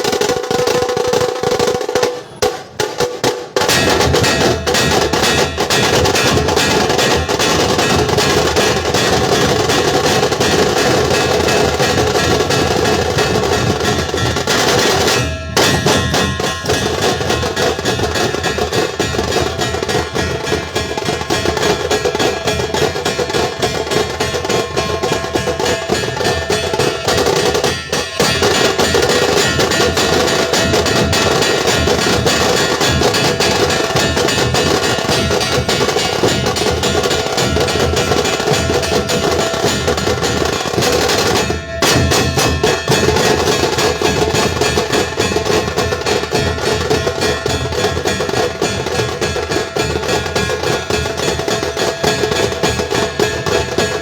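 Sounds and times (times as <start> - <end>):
barrel drums beating: 0.0 - 54.0
sharp snare drums: 0.0 - 54.0.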